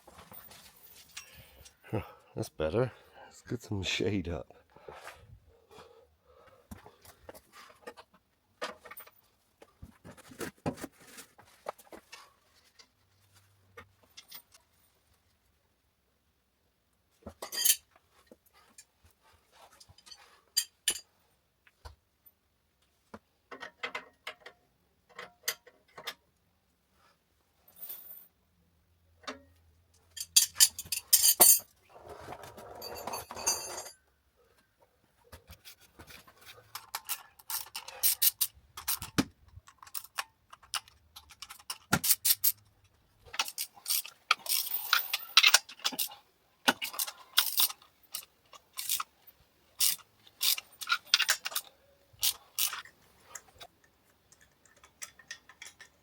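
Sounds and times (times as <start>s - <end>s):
metal tools clinking: 0.1s - 1.8s, 17.4s - 17.9s, 30.1s - 31.7s, 32.6s - 34.0s, 36.0s - 39.1s, 39.8s - 49.2s, 49.8s - 53.7s, 54.3s - 56.0s.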